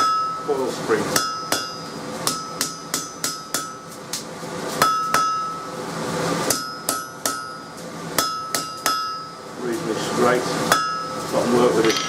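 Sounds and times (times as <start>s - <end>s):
hammer striking steel on anvil: 0.0s - 4.2s, 4.8s - 5.7s, 6.4s - 9.4s, 10.7s - 11.2s.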